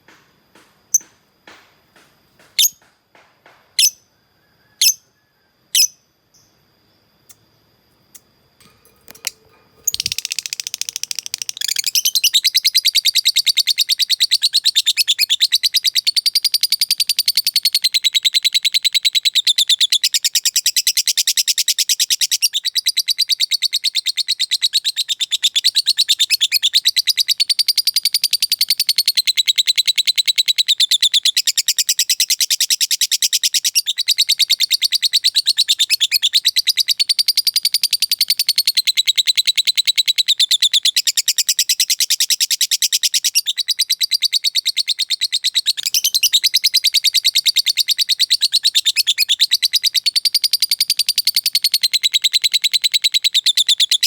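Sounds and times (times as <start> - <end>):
bird chattering trill: 9.1 - 16.1.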